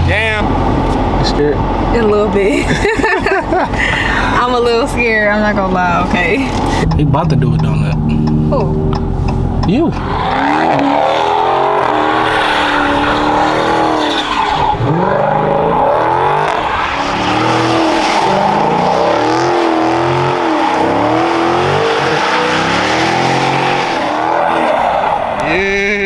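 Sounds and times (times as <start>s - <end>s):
car engine revving hard: 0.0s - 26.0s
tyres squealing: 4.2s - 26.0s.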